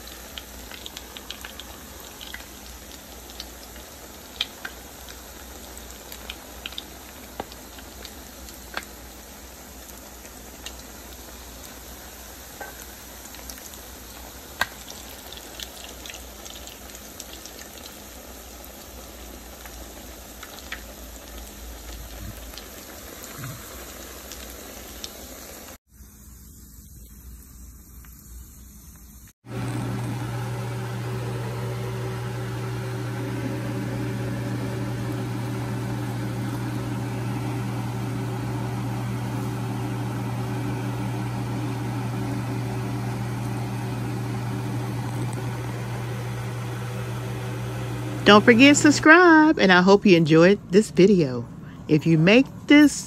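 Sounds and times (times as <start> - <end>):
patties sizzling in oil: 0.0 - 49.5
low machine hum: 28.5 - 52.9.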